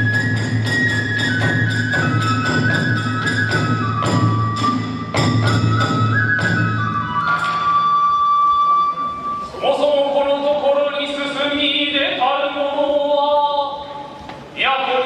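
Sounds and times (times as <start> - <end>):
bamboo flute melody: 0.0 - 10.6.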